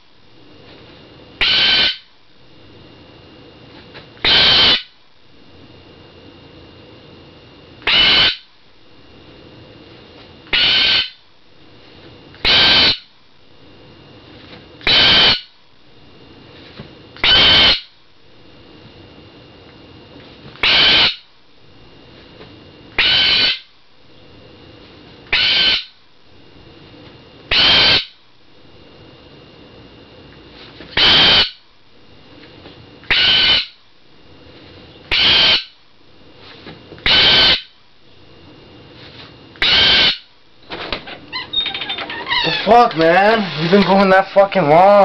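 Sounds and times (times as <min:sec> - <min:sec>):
pet bird screaming: 0:01.4 - 0:02.1, 0:04.2 - 0:04.9, 0:07.8 - 0:08.5, 0:10.5 - 0:11.2, 0:12.4 - 0:13.1, 0:14.8 - 0:15.5, 0:17.2 - 0:17.9, 0:20.6 - 0:21.3, 0:23.0 - 0:23.7, 0:25.3 - 0:26.0, 0:27.5 - 0:28.2, 0:31.0 - 0:31.6, 0:33.0 - 0:33.8, 0:35.1 - 0:35.8, 0:37.0 - 0:37.7, 0:39.6 - 0:40.3, 0:41.3 - 0:43.8.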